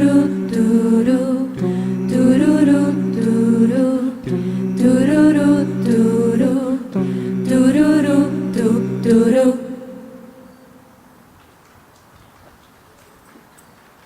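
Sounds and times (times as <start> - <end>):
a cappella group singing harmony: 0.0 - 10.7.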